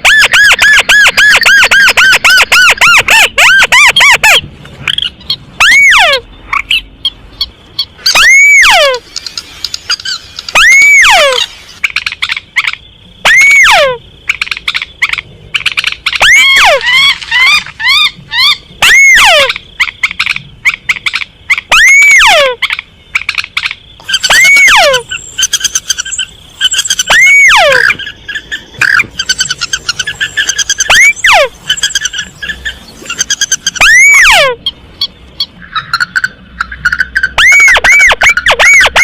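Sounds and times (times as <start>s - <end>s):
whistled bird calls: 0.0s - 39.0s
rapid chattering bird notes: 6.5s - 12.9s, 14.2s - 21.9s, 22.6s - 39.0s.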